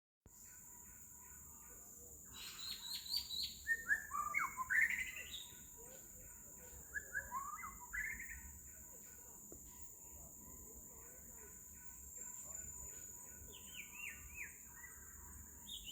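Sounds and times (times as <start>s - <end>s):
bird singing whistled notes: 2.3s - 5.7s, 6.7s - 8.7s, 12.4s - 15.9s.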